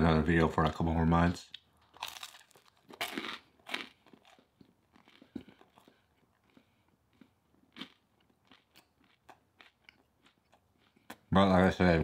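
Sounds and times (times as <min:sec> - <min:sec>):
person chewing food: 0:01.5 - 0:11.3.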